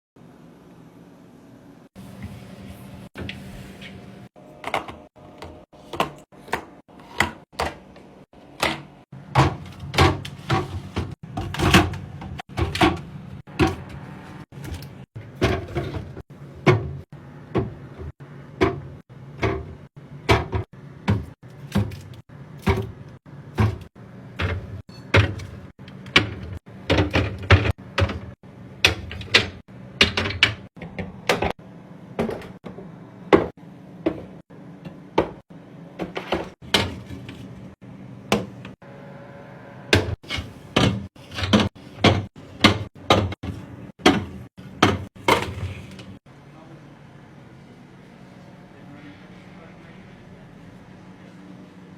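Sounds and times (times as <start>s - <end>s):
containers clunking in refrigerator: 39.9s - 46.2s.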